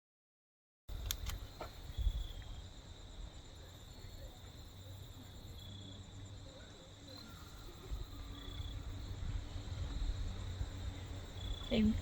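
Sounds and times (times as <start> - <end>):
sharp clicks: 0.9 - 1.5
insects droning: 0.9 - 12.0.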